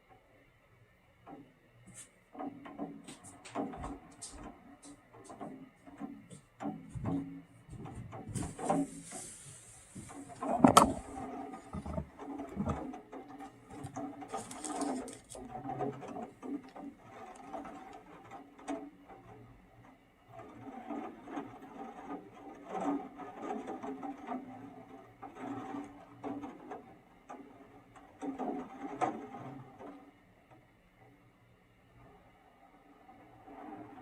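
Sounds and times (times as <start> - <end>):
handling noises: 7.8 - 12.9, 13.7 - 15.5.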